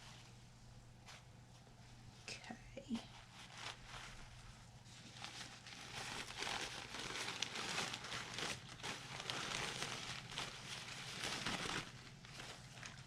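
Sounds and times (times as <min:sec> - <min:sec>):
packaging rustling and crinkling: 0:03.1 - 0:13.0.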